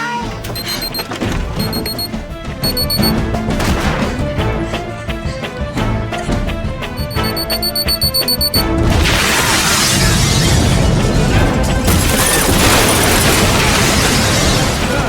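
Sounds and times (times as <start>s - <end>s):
debris crashing and shattering: 9.7s - 15.0s.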